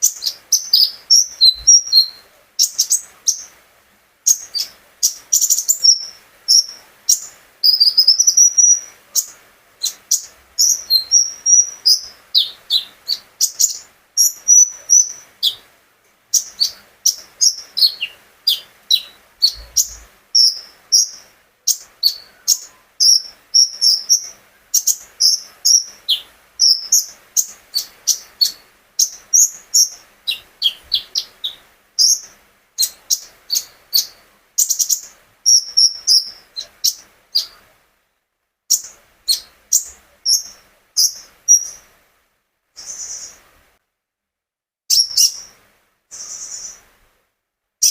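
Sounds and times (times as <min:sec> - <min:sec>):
songbird chirping and whistling: 0:00.0 - 0:03.6, 0:04.2 - 0:15.7, 0:16.3 - 0:37.7, 0:38.7 - 0:41.9, 0:42.8 - 0:43.4, 0:44.9 - 0:46.9.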